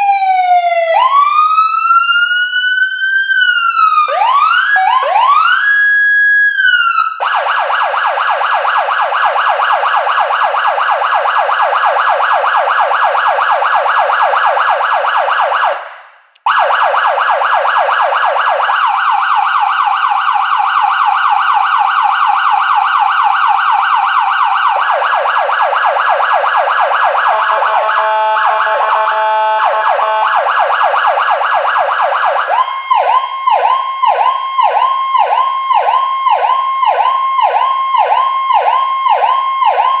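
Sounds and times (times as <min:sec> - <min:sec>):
electronic siren warbling: 0:16.5 - 0:40.0.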